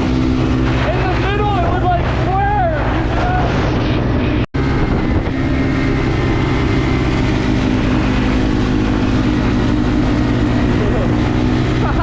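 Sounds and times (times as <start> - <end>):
wind noise on microphone: 0.0 - 11.8
dirt bike engine running: 4.0 - 12.0.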